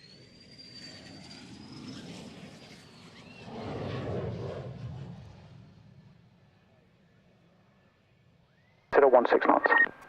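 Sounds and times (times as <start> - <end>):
aircraft flying past: 1.4 - 6.3.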